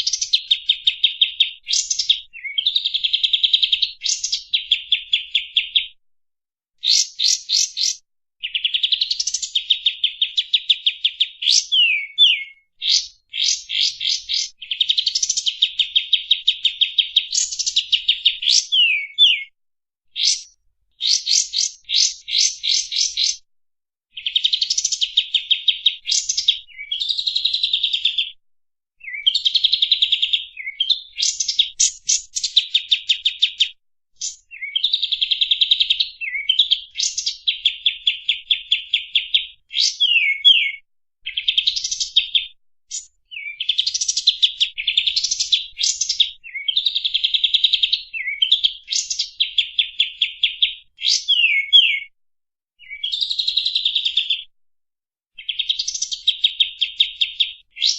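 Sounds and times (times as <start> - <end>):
bird singing fast trills: 0.0 - 5.9, 6.8 - 19.5, 20.2 - 23.4, 29.0 - 52.1.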